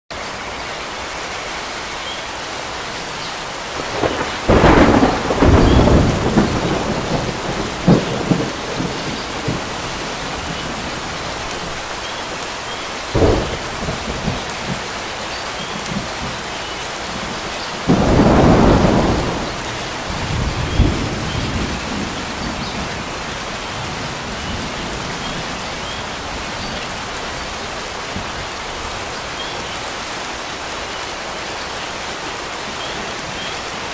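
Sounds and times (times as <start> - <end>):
rain falling on water: 0.1 - 33.9
thunder cracking and rumbling: 3.8 - 11.8, 13.1 - 15.0, 17.2 - 27.2.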